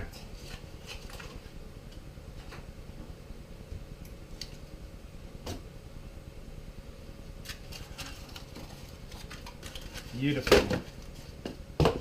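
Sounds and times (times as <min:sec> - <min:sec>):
steady low hum: 0:00.0 - 0:12.0
packaging rustling and tapping: 0:07.5 - 0:12.0.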